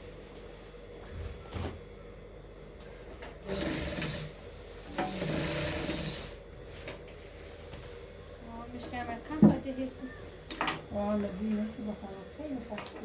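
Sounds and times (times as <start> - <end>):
electric sewing machine stitching: 3.4 - 6.4.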